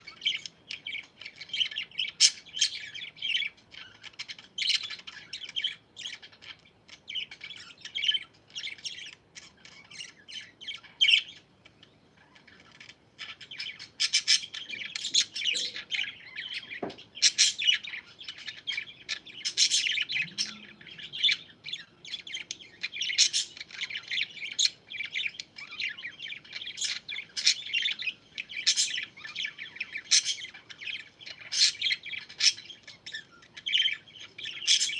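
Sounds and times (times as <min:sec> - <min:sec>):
parakeets chattering: 0:00.0 - 0:34.9.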